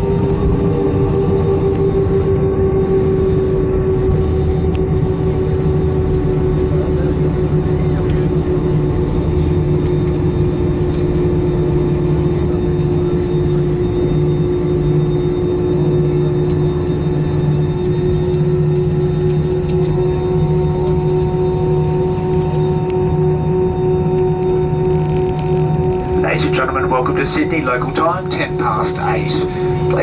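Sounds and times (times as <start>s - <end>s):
airliner cabin engine drone: 0.0s - 30.0s
prominent tone drifting lower: 16.2s - 30.0s.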